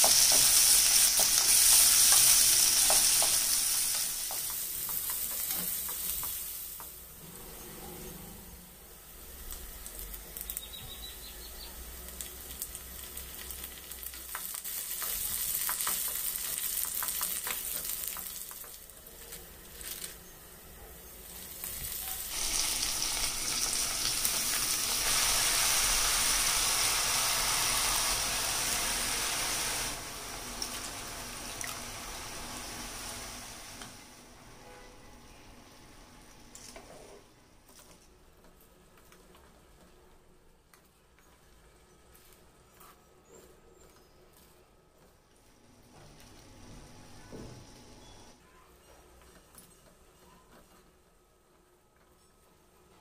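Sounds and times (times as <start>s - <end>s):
food sizzling in oil: 0.0s - 7.0s, 11.8s - 18.9s, 21.2s - 33.9s.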